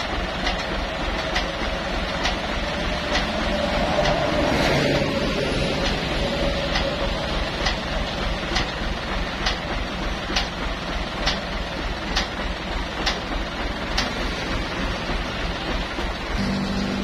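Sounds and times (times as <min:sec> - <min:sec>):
truck engine rumbling: 0:00.0 - 0:17.0
steady low tone: 0:01.2 - 0:08.6, 0:16.3 - 0:17.0.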